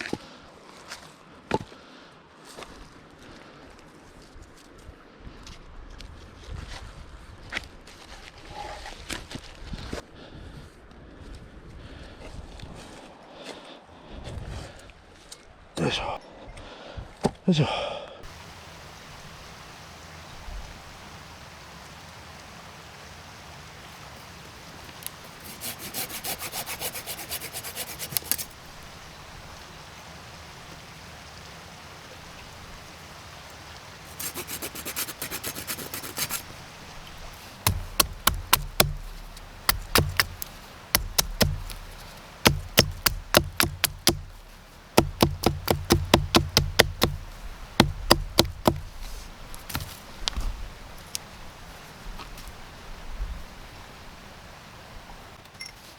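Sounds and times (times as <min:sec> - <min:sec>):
hand saw cutting wood: 0:25.4 - 0:28.5, 0:34.1 - 0:36.4, 0:37.7 - 0:49.9
wood chopping knocks: 0:37.7 - 0:50.0.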